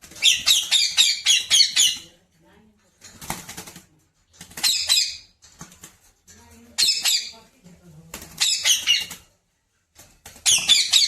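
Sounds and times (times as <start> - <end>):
parrot squawking: 0.1 - 2.0, 8.4 - 9.2, 10.4 - 11.0.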